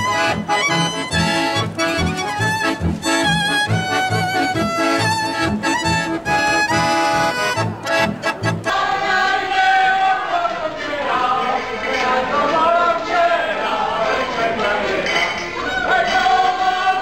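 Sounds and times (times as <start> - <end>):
accordion and violin tune: 0.0 - 9.4.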